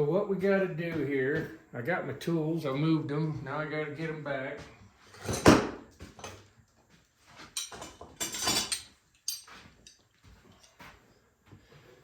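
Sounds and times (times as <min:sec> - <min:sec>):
metal hand tools clanking: 0:07.6 - 0:10.0.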